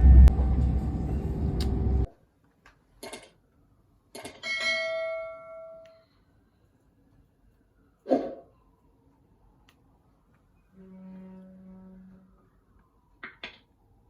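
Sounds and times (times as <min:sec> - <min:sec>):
vehicle interior rumble: 0:00.0 - 0:02.1.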